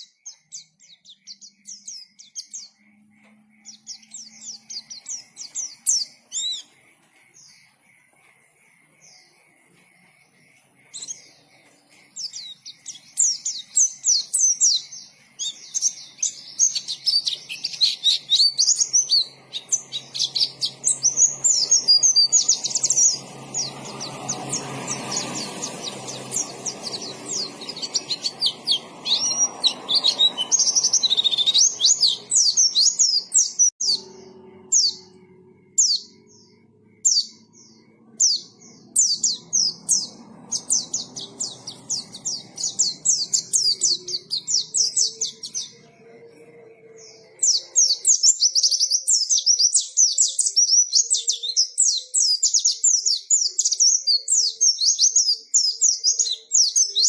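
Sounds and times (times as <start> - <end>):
bird twittering chirps: 0.0 - 57.0.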